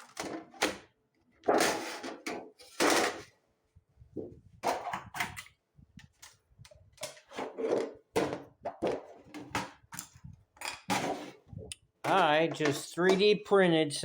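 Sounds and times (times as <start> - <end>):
hard objects knocking and clattering: 7.0 - 13.4.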